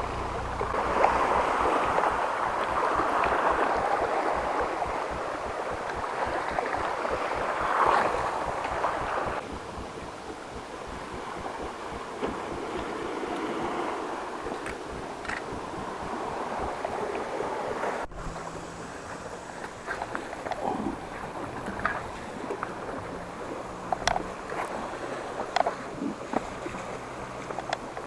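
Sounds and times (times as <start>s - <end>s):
waves washing against rocks: 0.0s - 28.0s
wind buffeting microphone: 0.0s - 28.0s.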